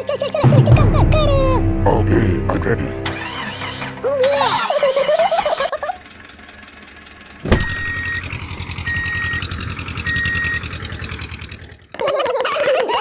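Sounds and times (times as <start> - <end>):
person speaking: 0.4 - 3.1
tractor engine chugging: 3.0 - 12.0.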